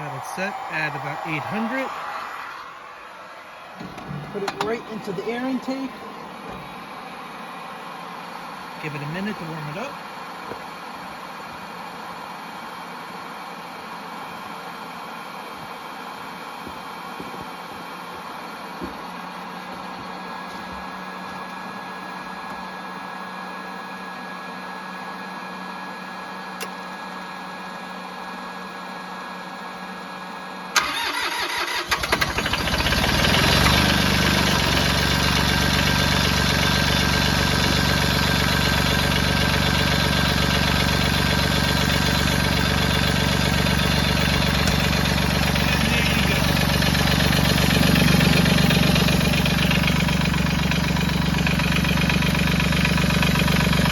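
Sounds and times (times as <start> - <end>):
diesel engine cranking and running: 3.8 - 9.8, 30.8 - 53.9.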